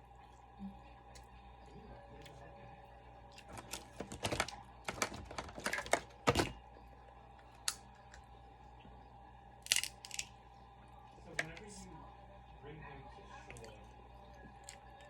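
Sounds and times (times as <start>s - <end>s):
small objects clicking and clattering: 9.7s - 10.3s.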